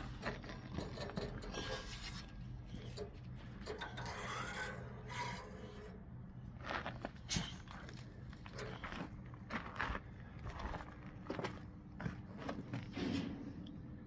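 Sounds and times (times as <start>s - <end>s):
scraping and rubbing: 0.0s - 5.9s.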